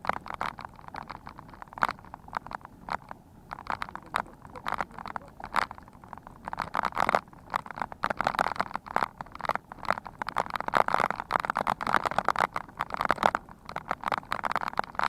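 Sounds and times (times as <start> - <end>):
bicycle rattling over rough ground: 0.0 - 15.0.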